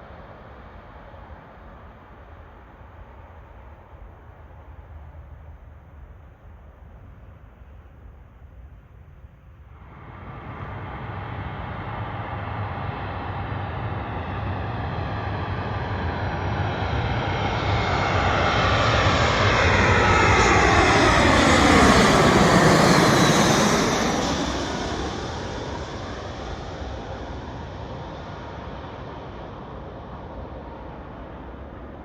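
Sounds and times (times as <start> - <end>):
airliner flying past: 9.6 - 32.0.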